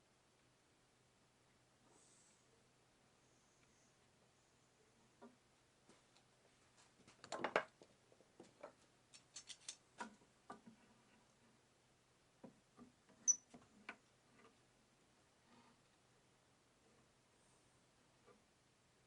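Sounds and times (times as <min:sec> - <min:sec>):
small clicks and knocks: 0:07.0 - 0:11.0, 0:12.4 - 0:14.6.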